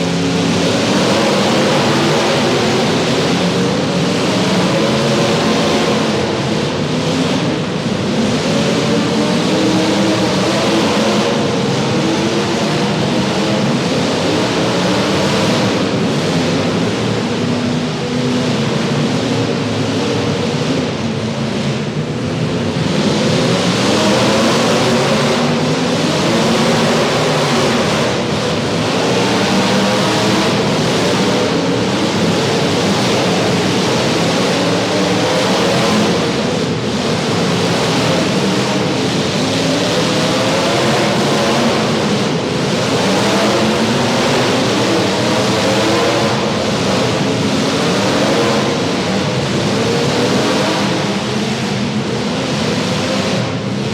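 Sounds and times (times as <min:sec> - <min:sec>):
car engines running loud: 0:00.0 - 0:53.9
dense noisy wash: 0:00.0 - 0:53.9.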